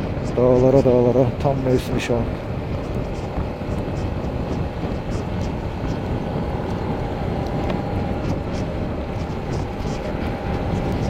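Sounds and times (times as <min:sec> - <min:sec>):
wind noise on microphone: 0:00.0 - 0:11.0
motorcycle engine: 0:02.3 - 0:11.0.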